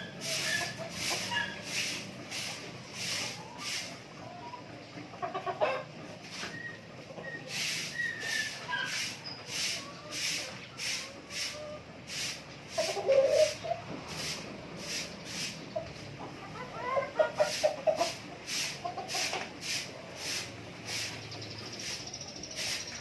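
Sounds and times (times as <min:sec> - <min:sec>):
chickens clucking: 0:00.0 - 0:23.0
thin high peeps: 0:21.0 - 0:23.0.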